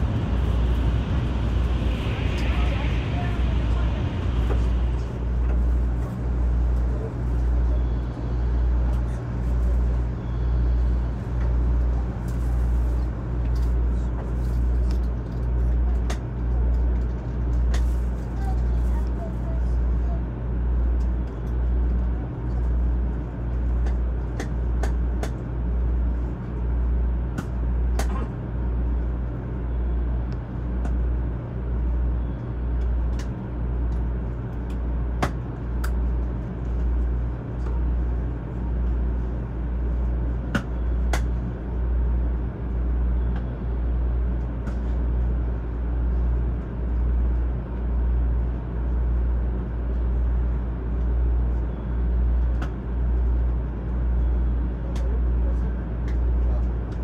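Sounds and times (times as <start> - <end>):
low equipment hum: 0.0 - 57.0.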